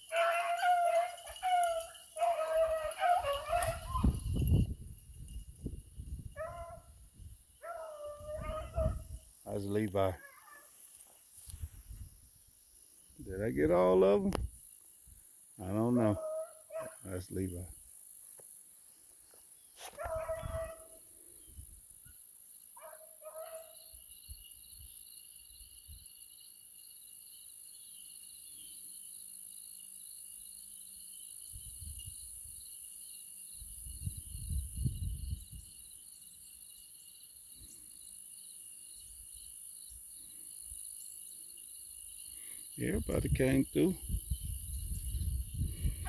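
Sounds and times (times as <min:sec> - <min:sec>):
hounds baying and yipping: 0:00.0 - 0:04.4, 0:06.4 - 0:07.0, 0:07.6 - 0:09.1, 0:10.2 - 0:10.9, 0:16.0 - 0:17.0, 0:19.8 - 0:21.0, 0:22.8 - 0:23.8
insects chirring: 0:00.0 - 0:46.0.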